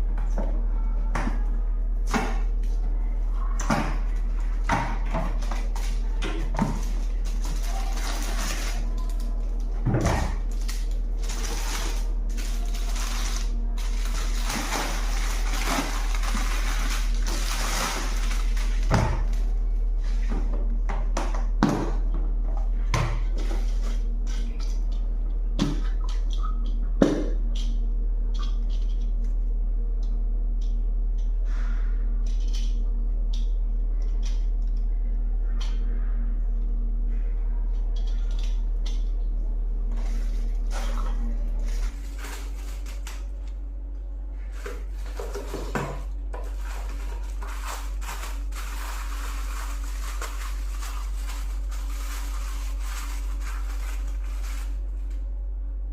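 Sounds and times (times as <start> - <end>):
low electrical hum: 0.0 - 55.9
plastic packaging rustling: 5.3 - 19.6, 40.0 - 43.4, 44.5 - 55.3.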